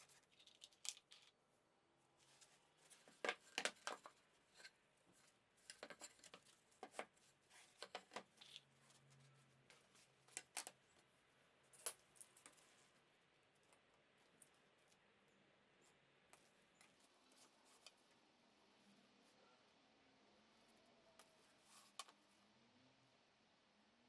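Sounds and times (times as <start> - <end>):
small objects clicking and tapping: 0.0 - 1.4, 10.2 - 11.0.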